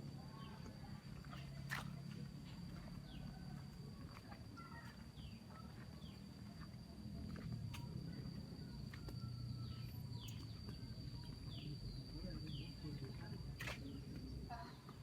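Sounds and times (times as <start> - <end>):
insect high-pitched drone: 0.0 - 15.0
bird chirps: 8.6 - 14.8.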